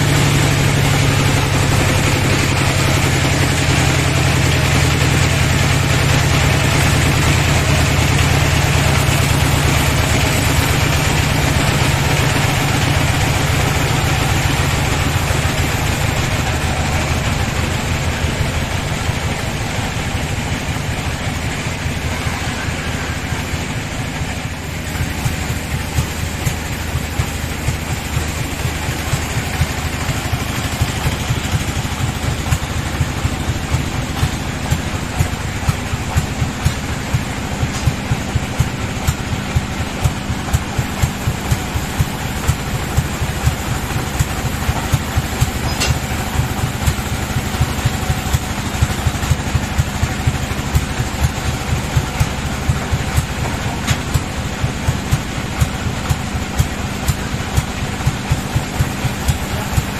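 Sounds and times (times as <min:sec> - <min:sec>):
bandsaw machinery drone: 0:00.0 - 0:59.9.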